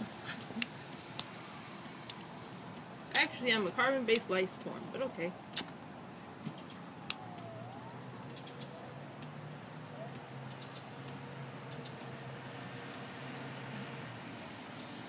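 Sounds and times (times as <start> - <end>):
faint bird chirps: 6.4 - 7.6, 8.2 - 9.0, 9.6 - 11.0.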